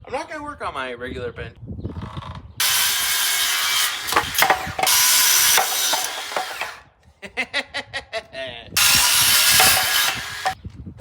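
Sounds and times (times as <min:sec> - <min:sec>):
sharp clicks and knocks: 0:02.6 - 0:06.8, 0:08.8 - 0:10.6
tool rasping wood: 0:02.6 - 0:06.8, 0:08.8 - 0:10.6.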